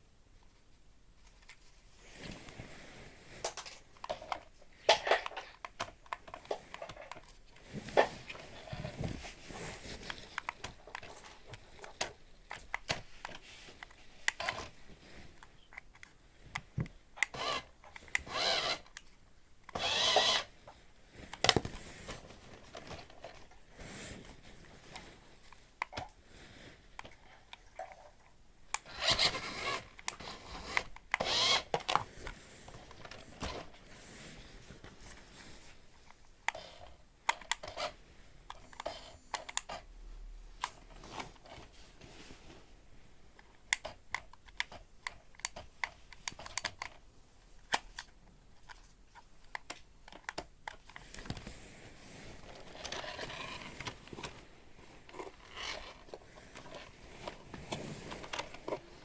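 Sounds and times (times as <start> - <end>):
toy car electric motor whirring: 17.2 - 18.9, 19.7 - 20.5, 28.8 - 31.9, 55.3 - 56.1.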